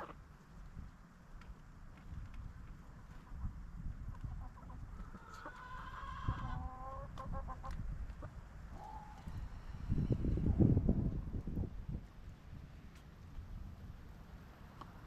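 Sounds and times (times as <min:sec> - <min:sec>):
chickens clucking and calling: 0:02.8 - 0:11.4
steady low rumble: 0:07.4 - 0:14.8.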